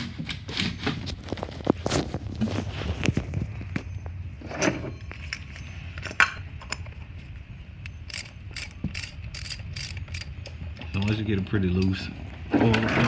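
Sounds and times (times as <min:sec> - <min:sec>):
metal clinks and knocks: 0:04.5 - 0:07.1
socket ratchet clicking: 0:08.1 - 0:10.3.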